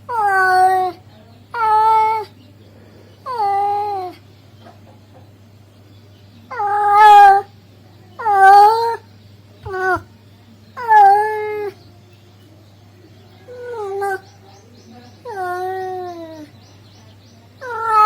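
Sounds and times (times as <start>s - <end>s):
faint low hum: 0.0s - 18.0s
cat yowling meows: 0.1s - 1.0s, 1.6s - 2.3s, 3.3s - 4.2s, 6.5s - 7.5s, 8.2s - 9.0s, 9.7s - 10.1s, 10.8s - 11.8s, 13.5s - 14.2s, 15.3s - 16.5s, 17.6s - 18.0s.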